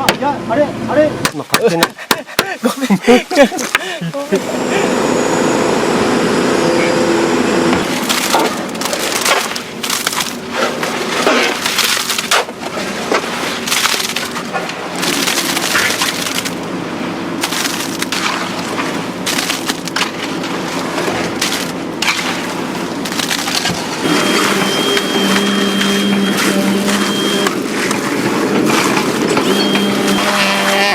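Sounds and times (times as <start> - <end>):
engine humming: 2.7 - 30.9
material cracking and crunching: 7.9 - 16.6, 17.4 - 24.0.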